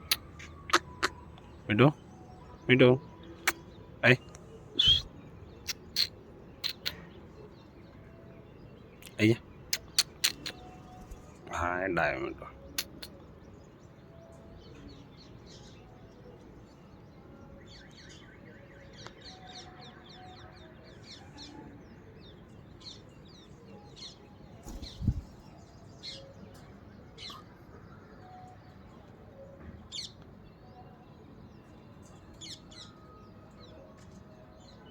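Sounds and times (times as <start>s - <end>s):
parrot chirping: 4.8s - 5.0s.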